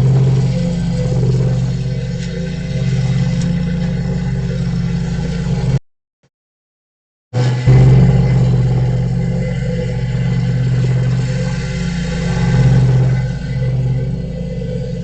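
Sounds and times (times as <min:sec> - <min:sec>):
low mechanical hum: 0:00.0 - 0:05.8, 0:07.4 - 0:15.0.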